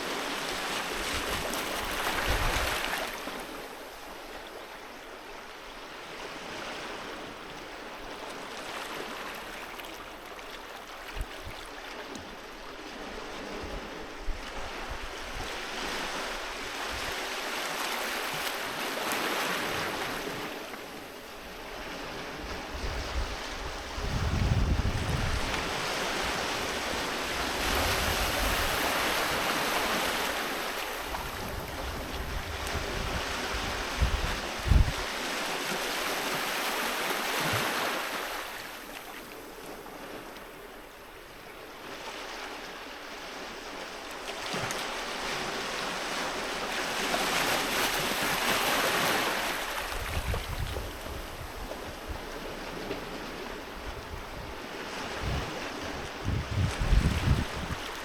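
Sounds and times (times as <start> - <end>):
wind gusts on microphone: 0.0 - 3.5, 21.5 - 36.6, 47.0 - 58.0
sea waves breaking on beach: 0.0 - 58.0.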